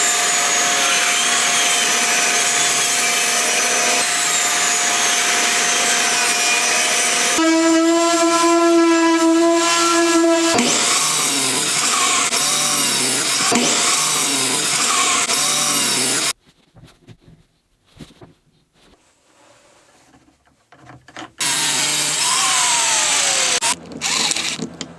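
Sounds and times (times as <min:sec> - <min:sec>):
power tools cutting wood: 0:00.0 - 0:16.3, 0:21.4 - 0:24.9
steady motor whine: 0:03.7 - 0:16.3, 0:21.4 - 0:24.9.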